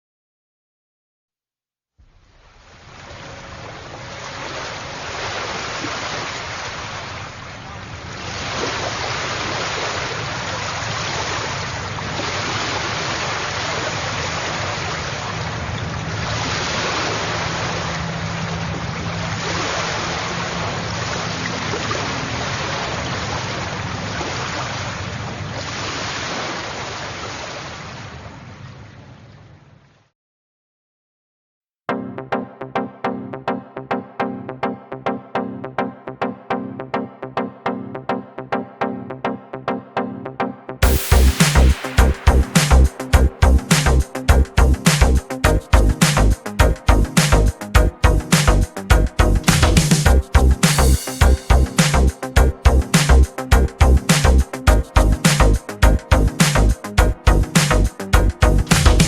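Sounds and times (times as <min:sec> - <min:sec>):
sea waves washing in: 0:02.2 - 0:29.4, 0:40.9 - 0:44.2.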